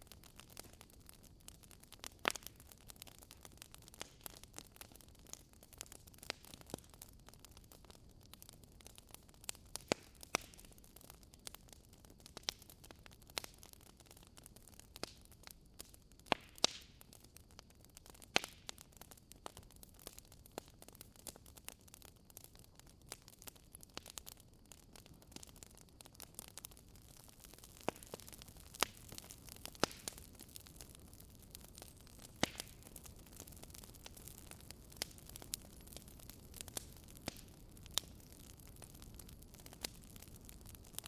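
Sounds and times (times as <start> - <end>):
faint steady hiss: 0.0 - 41.0
logs crackling in fireplace: 0.0 - 41.0.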